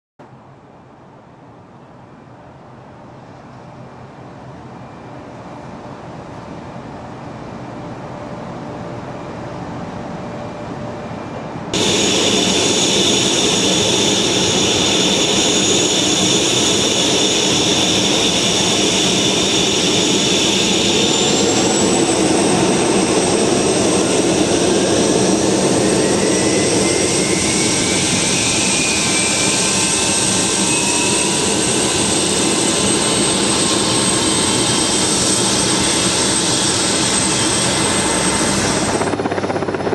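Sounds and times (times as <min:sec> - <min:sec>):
helicopter engine and rotor: 0:04.7 - 0:39.9
rising whine: 0:10.8 - 0:39.9.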